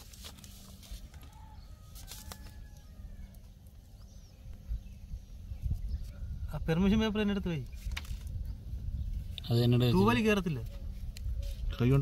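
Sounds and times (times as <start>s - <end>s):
thin bird calls: 10.4s - 12.0s.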